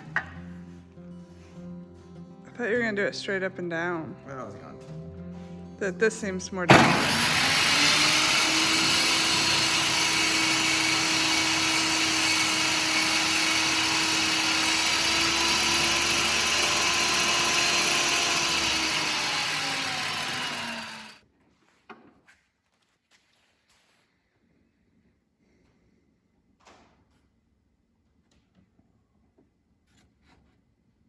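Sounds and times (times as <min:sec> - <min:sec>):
motor winding down: 0:06.7 - 0:21.2
power saw cutting: 0:06.7 - 0:21.2.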